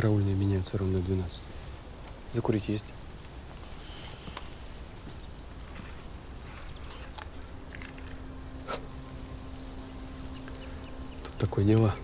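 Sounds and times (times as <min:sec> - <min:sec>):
birds chirping: 0:00.0 - 0:12.0
low steady hum: 0:00.0 - 0:12.0
faint clicks: 0:04.0 - 0:05.2.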